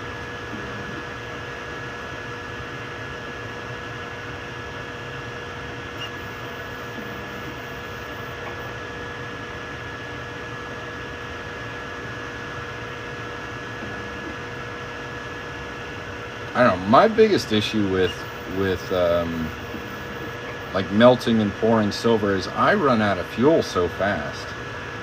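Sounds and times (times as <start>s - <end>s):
constant whine: 0.0s - 25.0s
printer fans whirring: 0.0s - 25.0s.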